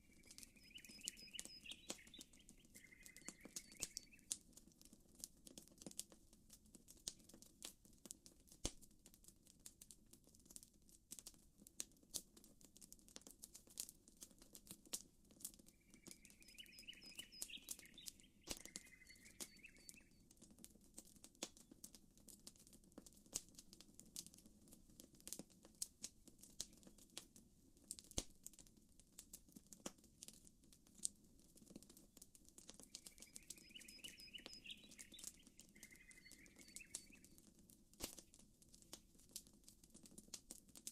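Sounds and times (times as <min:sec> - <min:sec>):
chirping bird call: 0:00.0 - 0:04.2, 0:15.8 - 0:20.1, 0:32.9 - 0:37.4
campfire crackling and popping: 0:00.0 - 0:40.9.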